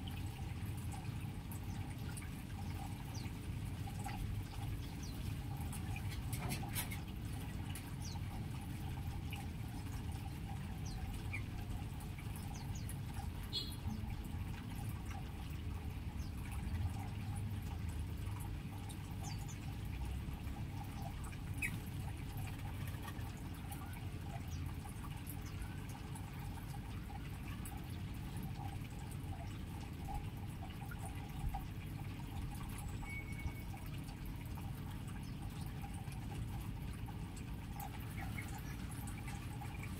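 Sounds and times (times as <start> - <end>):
faint bird chirps: 13.5 - 14.0, 32.7 - 33.8.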